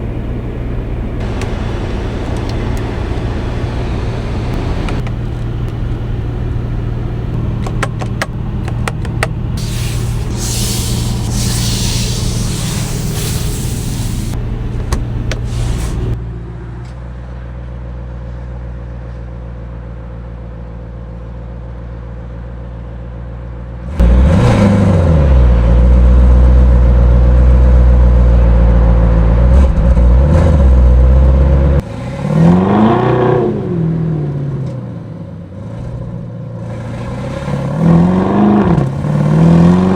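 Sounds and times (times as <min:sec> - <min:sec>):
car engine revving: 0:00.0 - 0:16.2, 0:24.0 - 0:26.5, 0:36.6 - 0:39.9
hiss: 0:09.6 - 0:14.4, 0:15.4 - 0:16.2.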